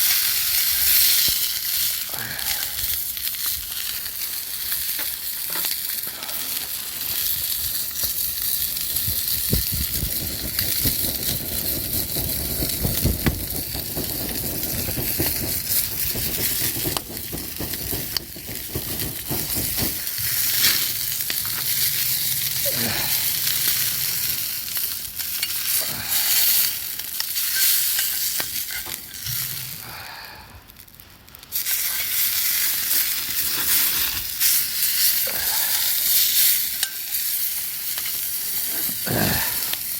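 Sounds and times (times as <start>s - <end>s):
food sizzling in a pan: 0.0s - 30.2s, 31.5s - 39.9s
stirring in a pan: 6.6s - 29.7s.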